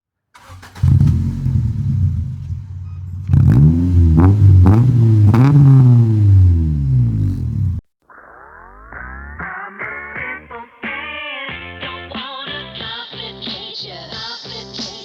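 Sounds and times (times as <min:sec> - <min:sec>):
car engine idling and revving: 0:00.4 - 0:07.8.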